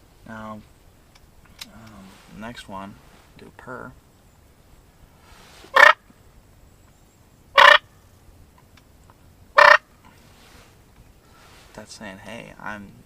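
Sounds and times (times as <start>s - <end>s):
turkey purr call: 5.7s - 6.0s, 7.6s - 7.9s, 9.6s - 9.9s.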